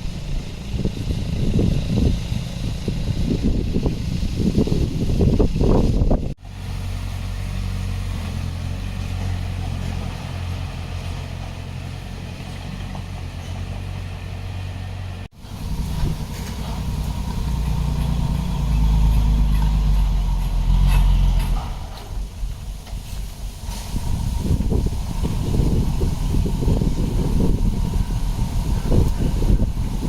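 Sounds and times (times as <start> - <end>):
diesel engine low rumble: 0.0 - 30.0.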